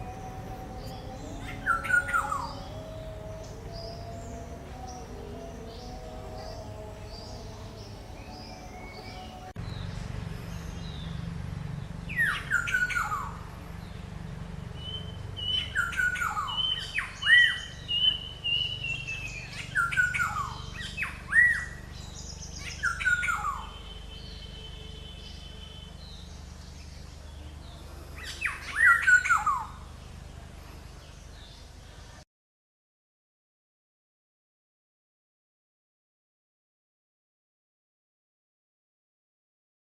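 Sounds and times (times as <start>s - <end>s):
bird calling with harsh notes: 0.0s - 9.5s, 12.1s - 13.5s, 14.8s - 26.9s, 28.2s - 29.9s.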